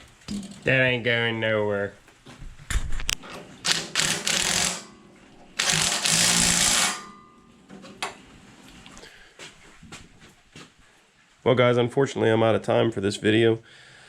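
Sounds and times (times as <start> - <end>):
rattling hissing mechanical bursts: 3.6 - 4.8, 5.6 - 7.0
sharp mechanical clicks: 3.6 - 4.9, 5.6 - 7.0.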